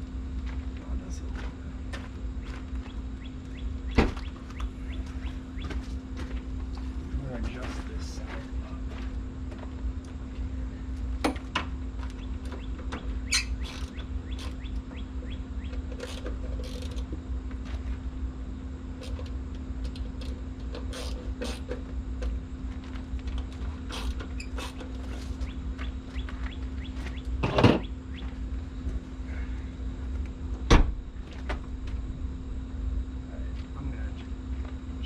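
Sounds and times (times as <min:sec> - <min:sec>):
low hum: 0:00.0 - 0:35.0
clicks taps and creaks: 0:15.7 - 0:17.1.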